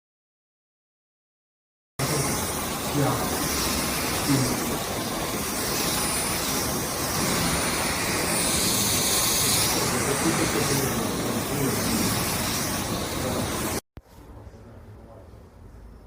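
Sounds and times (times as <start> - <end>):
vacuum cleaner running: 2.0 - 13.8.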